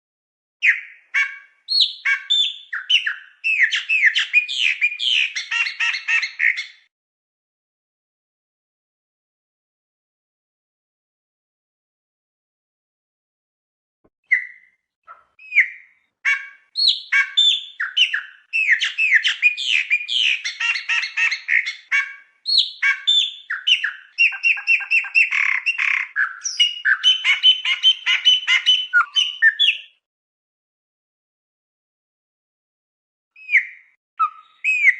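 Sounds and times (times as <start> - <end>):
songbird singing: 0.6 - 6.9, 14.3 - 30.0, 33.4 - 34.9.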